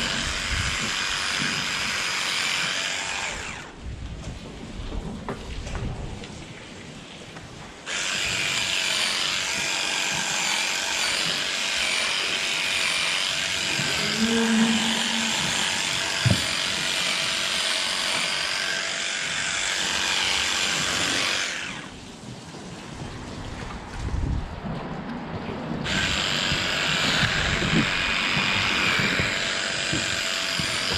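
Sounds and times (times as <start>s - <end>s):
small electric motor whine: 0.0s - 3.8s, 7.9s - 21.9s, 25.8s - 30.9s.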